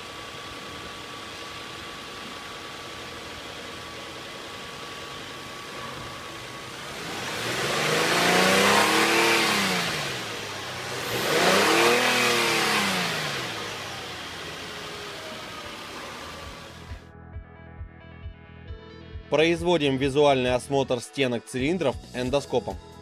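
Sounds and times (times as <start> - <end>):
car engine idling and revving: 0.0 - 17.1.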